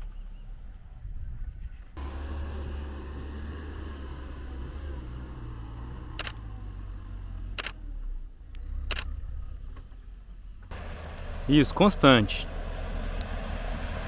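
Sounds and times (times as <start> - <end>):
vehicle engine rumbling: 0.0 - 14.0
sharp clicks: 6.1 - 6.5, 7.5 - 7.8, 8.5 - 9.1.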